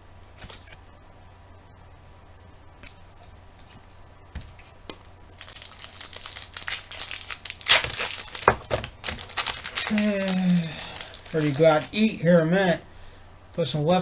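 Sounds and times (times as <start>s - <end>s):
foil wrapper crackling: 4.8s - 12.6s.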